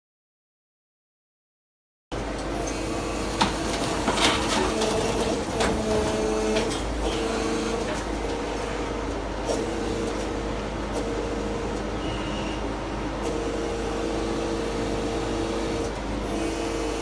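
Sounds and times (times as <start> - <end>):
demolition machine hydraulic hum: 2.2 - 17.0
knocks and clatters: 3.4 - 7.0.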